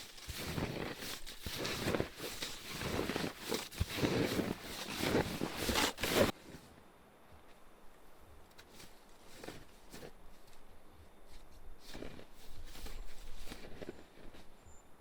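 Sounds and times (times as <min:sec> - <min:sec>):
footsteps crunching in snow: 0:00.0 - 0:06.8, 0:08.6 - 0:14.8.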